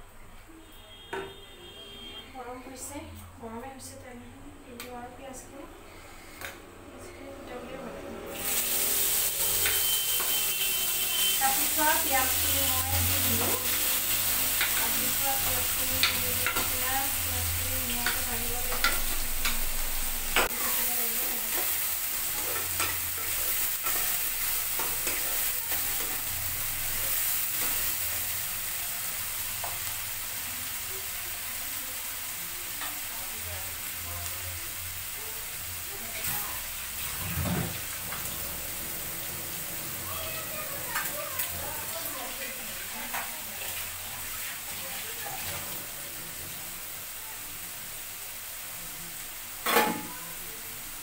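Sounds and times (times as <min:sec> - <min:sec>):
onions sizzling in hot oil: 0:08.2 - 0:51.0
spatula clicking and scraping pan: 0:09.5 - 0:10.5, 0:13.4 - 0:16.8, 0:17.9 - 0:19.7, 0:21.5 - 0:26.3.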